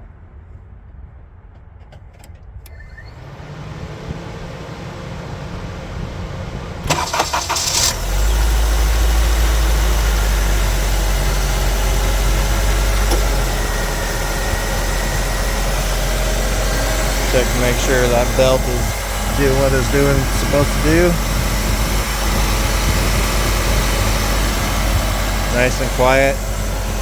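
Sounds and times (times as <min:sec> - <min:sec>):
engine cranking: 0:02.6 - 0:27.0
car engine idling: 0:02.7 - 0:27.0
starter clicks: 0:06.8 - 0:08.4.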